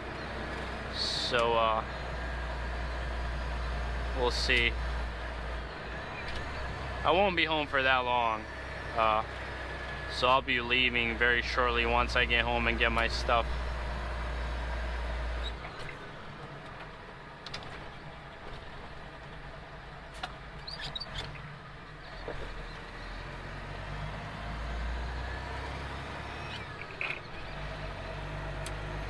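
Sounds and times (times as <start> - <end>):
road noise: 0.0 - 29.0
truck diesel engine humming: 0.0 - 29.0.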